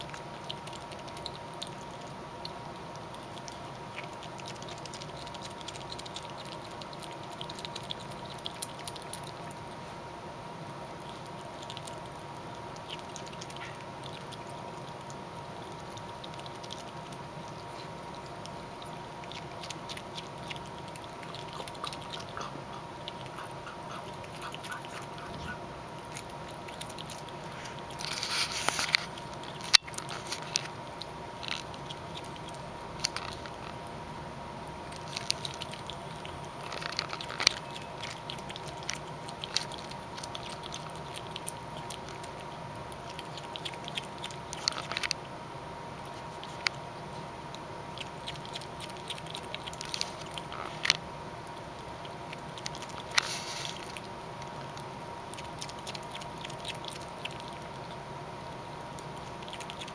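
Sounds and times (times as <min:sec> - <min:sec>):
faint steady hum: 0:00.0 - 0:59.9
small animal chewing food: 0:00.0 - 0:59.9
small crunching clicks: 0:26.0 - 0:33.9, 0:34.9 - 0:45.3, 0:47.5 - 0:59.9.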